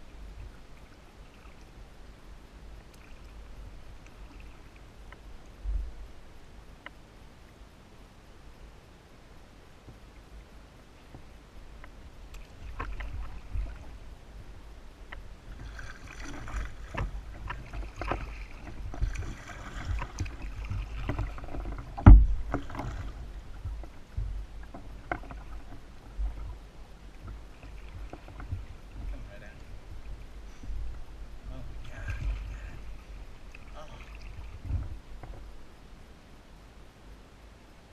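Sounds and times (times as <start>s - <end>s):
paddle splashing in water: 0.0s - 1.8s, 11.0s - 35.7s
knocks against kayak hull: 16.2s - 26.5s
loud thump: 22.0s - 22.5s.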